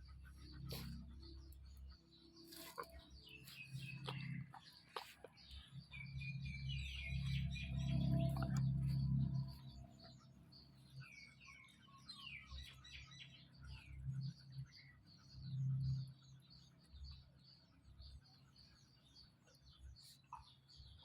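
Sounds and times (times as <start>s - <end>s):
small birds chirping: 0.0s - 21.0s
low rumble: 5.6s - 10.7s.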